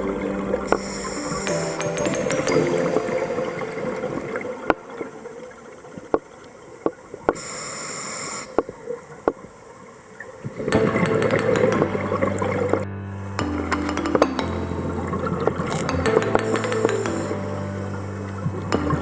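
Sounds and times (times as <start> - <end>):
background music: 0.0 - 6.2, 10.6 - 19.0
underwater ambience: 0.0 - 19.0.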